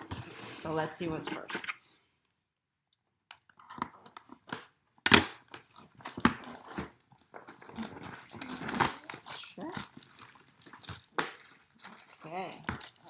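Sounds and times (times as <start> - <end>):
packaging crinkling and rustling: 5.4 - 13.0.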